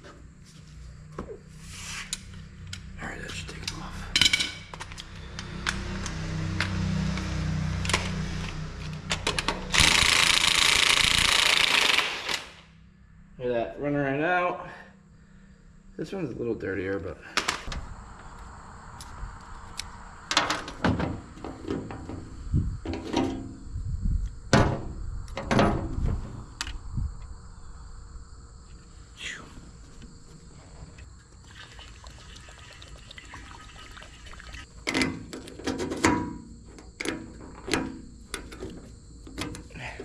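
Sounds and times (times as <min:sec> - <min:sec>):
clanking tools and parts: 0:03.4 - 0:12.5, 0:20.3 - 0:23.5, 0:34.8 - 0:40.0.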